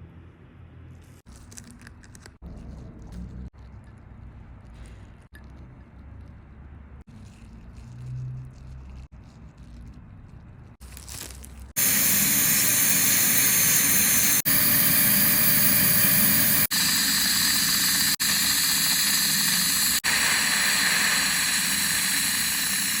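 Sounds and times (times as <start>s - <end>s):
dental drill high whine: 11.8s - 23.0s.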